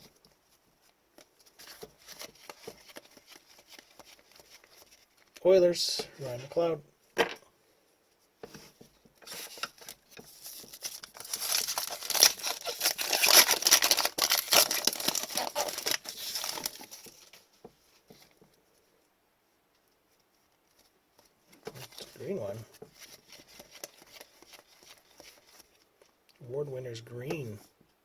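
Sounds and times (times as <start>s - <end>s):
foil wrapper crinkling and tearing: 1.5s - 5.4s, 9.2s - 17.4s, 21.8s - 25.8s.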